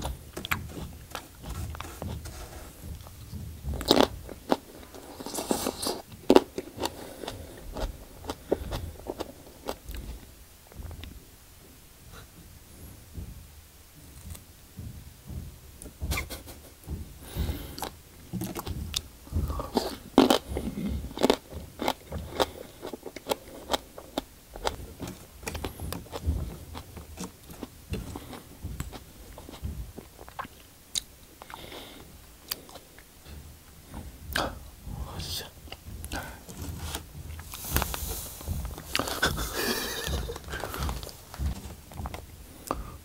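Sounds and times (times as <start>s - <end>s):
wet chewing of plant leaf: 0.0s - 10.3s, 17.3s - 33.1s, 35.6s - 42.9s.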